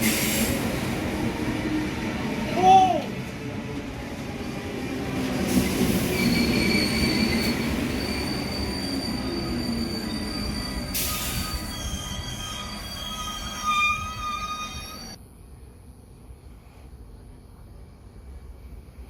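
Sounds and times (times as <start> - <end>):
burst of hiss: 0.0 - 0.7
train wheels squealing on rails: 0.0 - 1.0, 5.2 - 15.2
train low rumble: 0.0 - 19.0.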